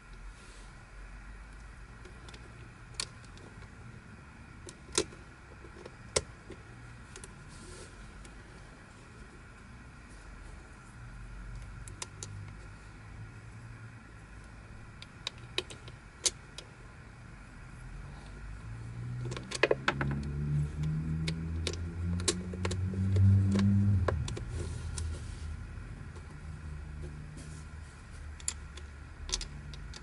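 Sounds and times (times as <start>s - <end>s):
plastic puzzle pieces clicking: 19.2s - 24.5s
low hum: 20.1s - 30.0s.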